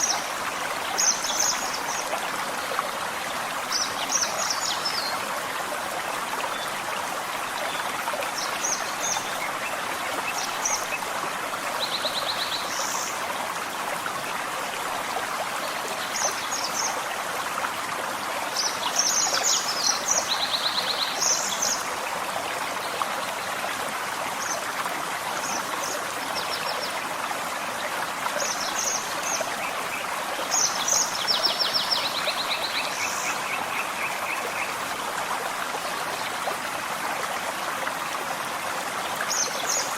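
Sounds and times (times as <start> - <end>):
forest stream running: 0.0 - 39.9.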